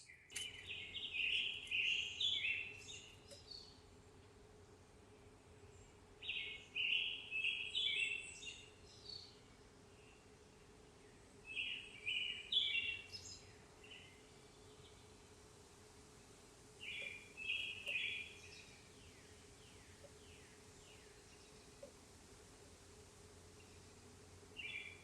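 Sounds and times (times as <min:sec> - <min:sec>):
birds calling: 0:16.8 - 0:22.1, 0:24.6 - 0:25.0.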